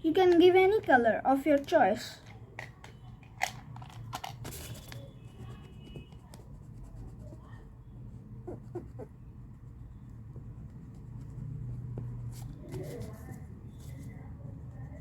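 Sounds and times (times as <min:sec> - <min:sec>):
coloring tool scratching on paper: 0:05.2 - 0:13.4.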